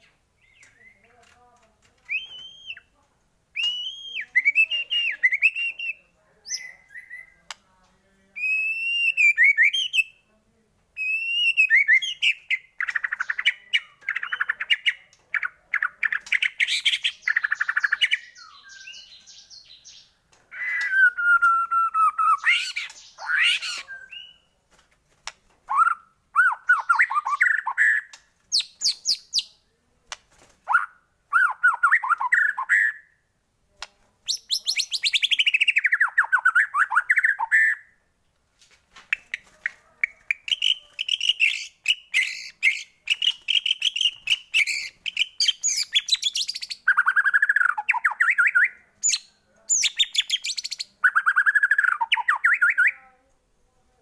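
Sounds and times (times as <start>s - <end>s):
songbird singing varied song: 0.0s - 7.7s, 8.3s - 10.3s, 11.0s - 24.6s, 25.7s - 29.7s, 30.7s - 33.2s, 34.2s - 38.0s, 39.1s - 53.0s.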